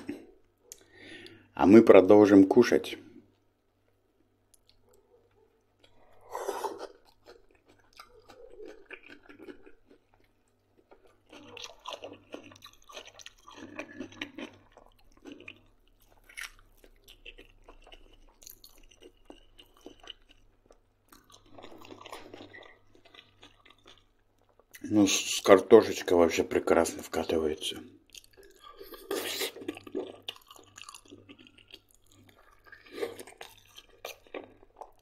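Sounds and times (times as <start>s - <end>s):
man chewing and biting: 4.4s - 24.9s, 28.0s - 35.0s.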